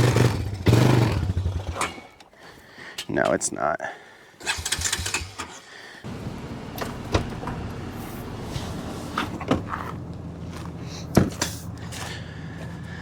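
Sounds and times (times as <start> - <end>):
low mechanical hum: 6.1 - 13.0
sharp knocks and clunks: 6.7 - 7.7, 11.1 - 11.6.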